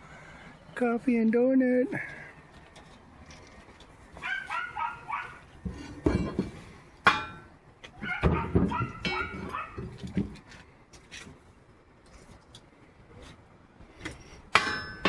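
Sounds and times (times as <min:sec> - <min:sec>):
dog whining and yipping: 0:04.2 - 0:05.4, 0:08.0 - 0:09.8.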